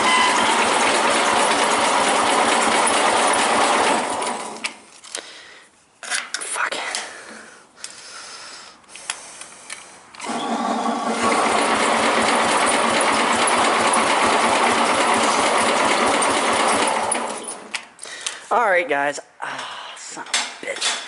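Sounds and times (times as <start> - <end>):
engine cranking on starter: 0.0 - 4.8, 10.2 - 17.8.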